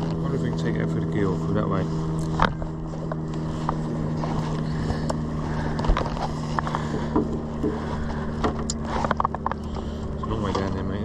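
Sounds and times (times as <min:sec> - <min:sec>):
boat engine idling: 0:00.0 - 0:11.0
gear knocking and clicking: 0:04.5 - 0:11.0.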